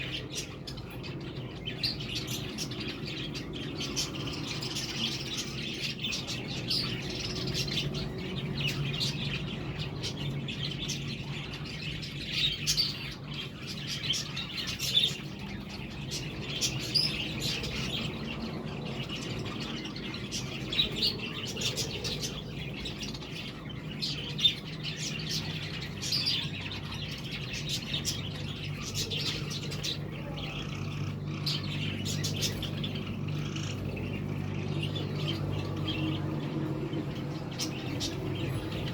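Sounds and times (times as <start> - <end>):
budgerigars chattering: 0.0 - 38.9.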